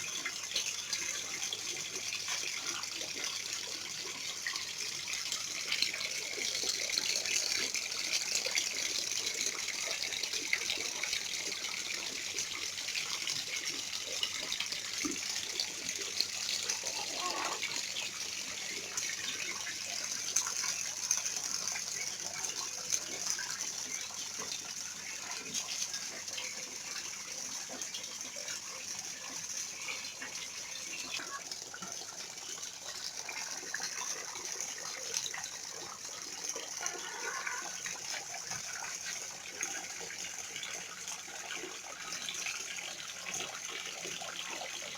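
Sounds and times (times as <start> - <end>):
splashing falling water: 15.0 - 41.0.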